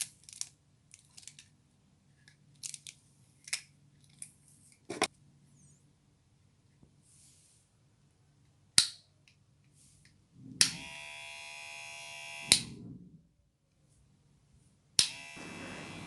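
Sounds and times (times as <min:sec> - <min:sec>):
hair clipper buzzing: 0:10.6 - 0:12.8, 0:15.0 - 0:16.0.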